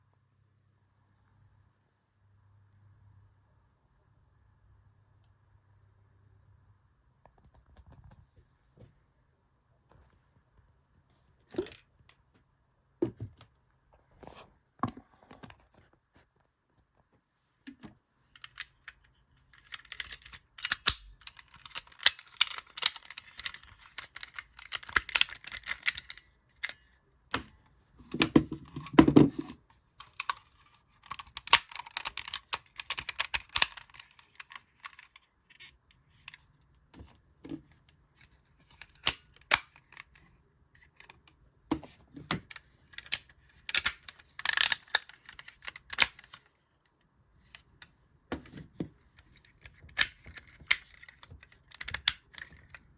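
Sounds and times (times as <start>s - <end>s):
plastic toy parts clicking: 18.4s - 27.5s, 28.1s - 36.4s, 38.2s - 40.2s, 40.8s - 46.5s, 47.5s - 52.9s.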